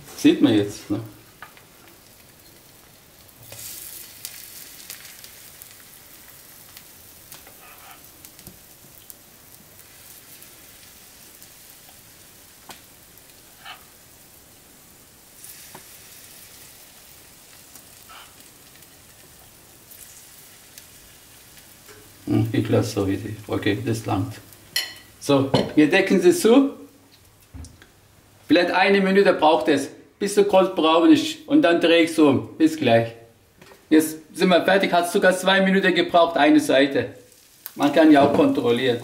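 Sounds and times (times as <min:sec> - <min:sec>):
batter sizzling in oil: 0:00.0 - 0:25.4, 0:36.3 - 0:39.0.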